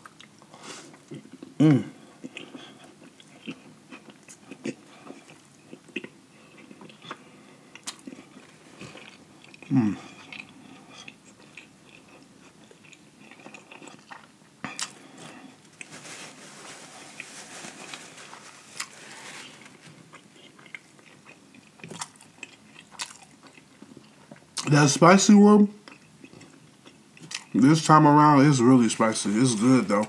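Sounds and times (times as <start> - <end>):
wet mouth chewing: 2.2 - 15.2, 20.1 - 24.7
crunching fried breading: 2.3 - 25.0
paper napkin rustling: 15.8 - 20.0.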